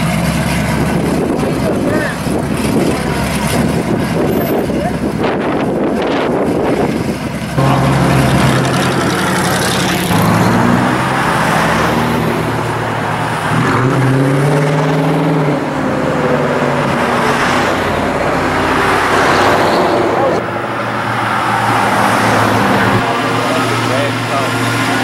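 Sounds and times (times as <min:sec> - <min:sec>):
car engines driving past: 0:00.0 - 0:25.0.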